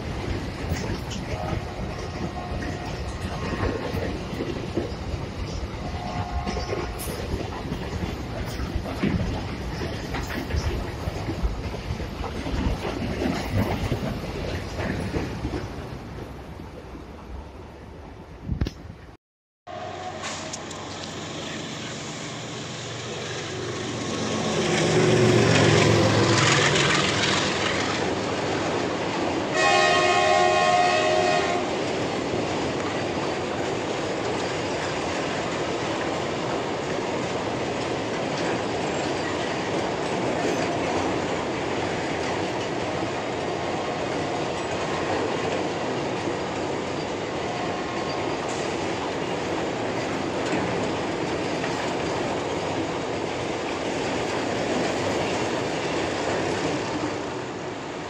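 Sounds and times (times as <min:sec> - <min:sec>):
train horn: 0:02.2 - 0:03.0, 0:05.8 - 0:06.9, 0:29.5 - 0:31.8
wheels clacking over rail joints: 0:23.3 - 0:29.5, 0:31.7 - 0:57.3.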